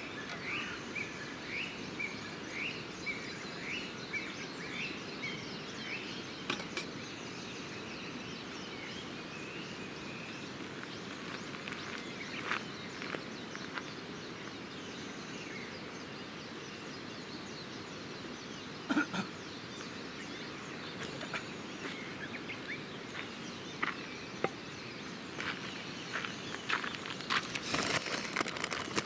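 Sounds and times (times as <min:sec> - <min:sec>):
outdoor hiss: 0:05.8 - 0:29.0.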